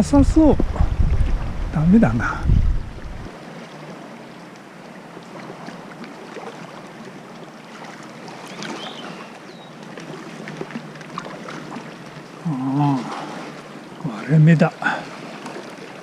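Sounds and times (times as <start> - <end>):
water sloshing around a kayak: 0.6 - 16.0
small splashes and drips: 4.4 - 16.0.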